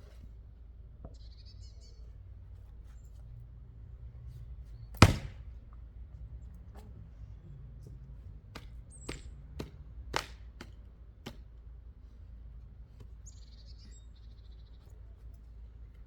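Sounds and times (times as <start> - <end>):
bird chirp: 1.0 - 2.2, 8.8 - 9.4, 13.1 - 15.6
axe chopping wood: 5.0 - 5.6, 8.5 - 11.5.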